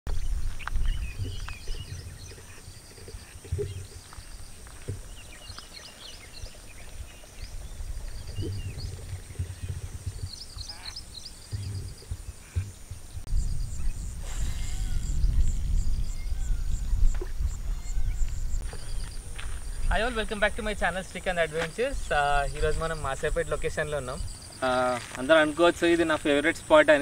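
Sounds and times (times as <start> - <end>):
birds chirping and whistling: 0.1 - 27.0
wind gusting on microphone: 0.1 - 27.0.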